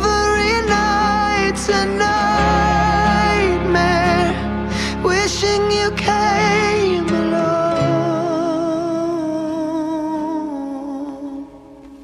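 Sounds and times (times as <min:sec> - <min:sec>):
backing music: 0:00.0 - 0:09.4.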